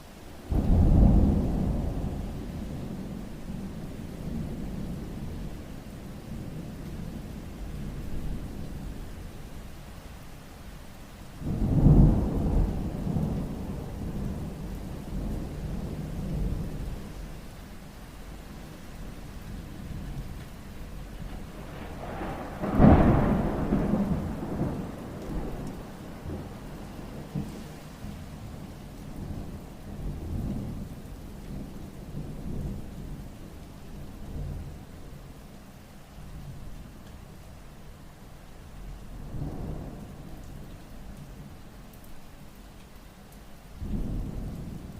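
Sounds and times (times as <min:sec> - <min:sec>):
rain: 0:00.0 - 0:44.9
thunder rumble: 0:19.6 - 0:34.9.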